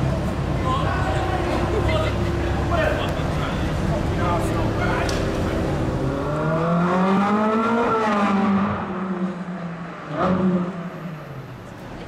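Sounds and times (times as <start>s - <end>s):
car engine revving: 3.7s - 11.7s.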